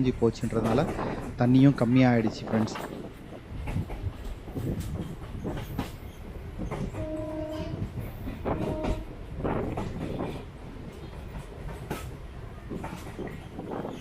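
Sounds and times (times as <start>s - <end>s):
train rumbling on track: 0.0s - 14.0s
wheels clicking over rail joints: 0.2s - 14.0s.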